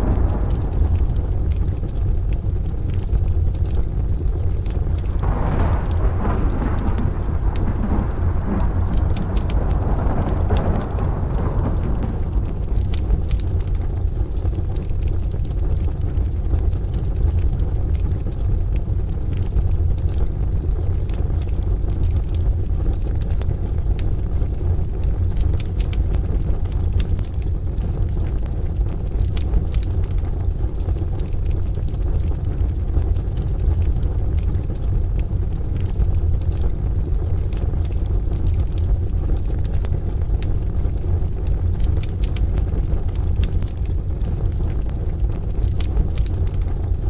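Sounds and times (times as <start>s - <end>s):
rain and thunder rumble: 0.0s - 47.0s
wood fire crackling and popping: 0.0s - 47.0s.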